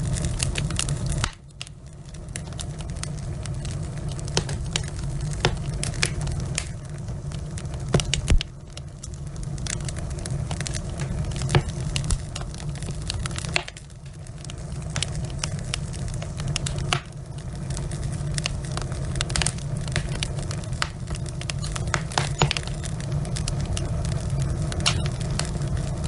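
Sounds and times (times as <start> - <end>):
logs crackling and popping: 0.0 - 26.0
low rumble of fire: 0.0 - 26.0.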